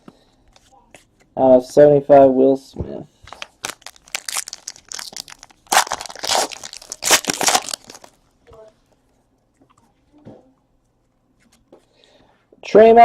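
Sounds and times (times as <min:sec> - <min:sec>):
packaging crinkling and tearing: 0:03.3 - 0:08.2.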